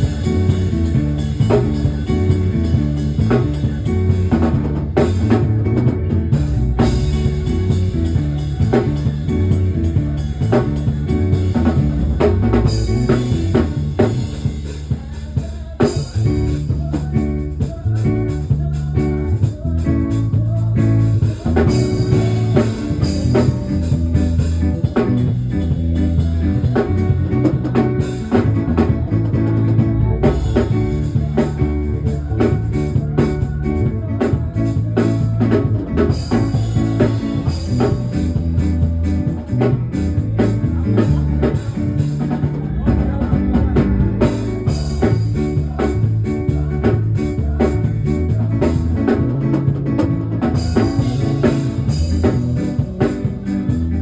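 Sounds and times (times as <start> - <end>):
bass guitar: 0.0 - 54.0
drum kit steady beat: 0.0 - 54.0
guitar: 0.0 - 54.0.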